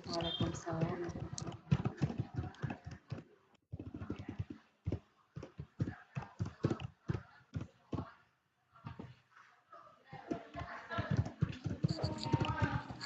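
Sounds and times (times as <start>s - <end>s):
typing on computer keyboard: 11.5s - 13.0s.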